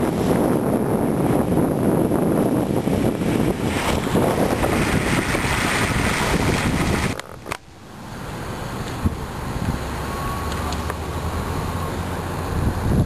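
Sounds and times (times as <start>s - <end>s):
wind buffeting microphone: 0.0s - 7.6s, 12.4s - 13.0s.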